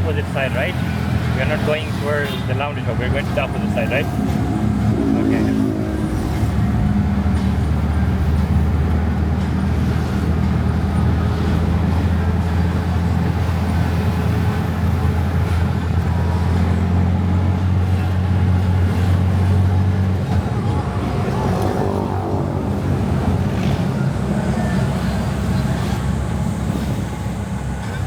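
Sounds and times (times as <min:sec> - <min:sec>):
road noise: 0:00.0 - 0:28.0
vehicle engine humming: 0:00.0 - 0:28.0.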